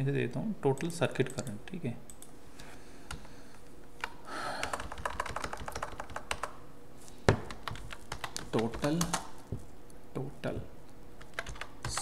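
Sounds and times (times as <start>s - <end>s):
keyboard typing: 0.8s - 2.3s, 4.0s - 6.6s, 7.3s - 9.4s, 11.2s - 12.0s.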